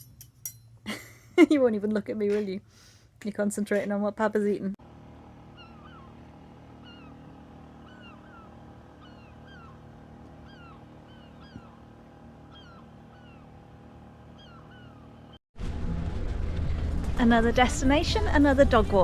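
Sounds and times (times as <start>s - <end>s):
steady low hum: 4.6s - 19.0s.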